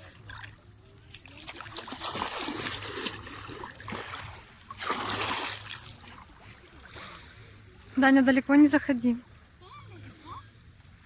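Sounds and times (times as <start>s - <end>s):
sea water splashing: 0.0s - 8.2s.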